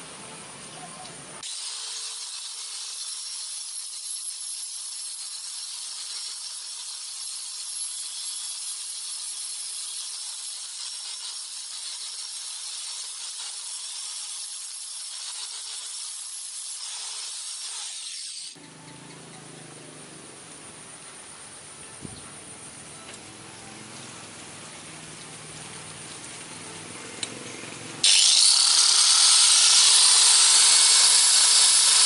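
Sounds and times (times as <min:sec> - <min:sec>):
belt sander grinding steel: 0:01.4 - 0:19.6, 0:25.6 - 0:32.0.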